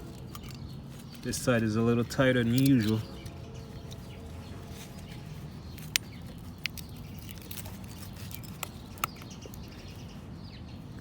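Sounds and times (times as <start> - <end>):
light metallic clicks: 2.4 - 4.0.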